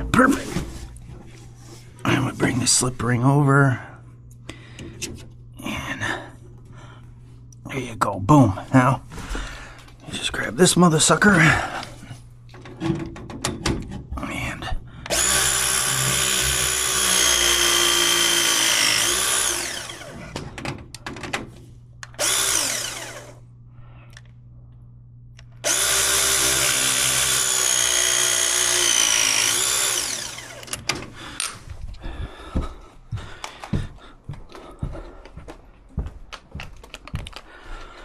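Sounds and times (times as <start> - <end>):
power tool motor running: 15.1 - 20.4, 22.1 - 23.4, 25.6 - 30.8.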